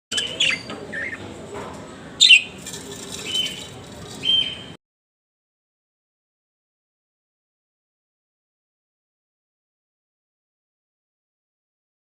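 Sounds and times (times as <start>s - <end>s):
parrots chirping: 0.1s - 1.2s, 2.2s - 4.7s.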